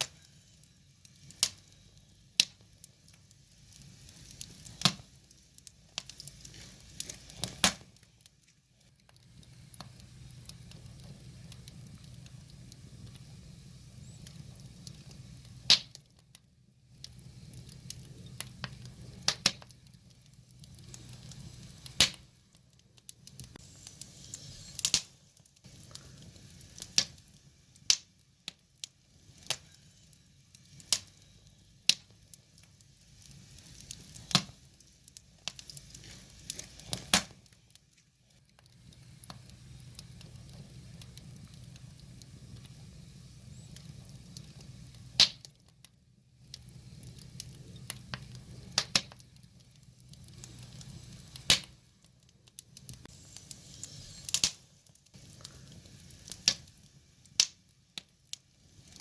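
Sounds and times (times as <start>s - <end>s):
wood fire crackling and popping: 0.0s - 59.0s
faint hiss: 16.6s - 59.0s.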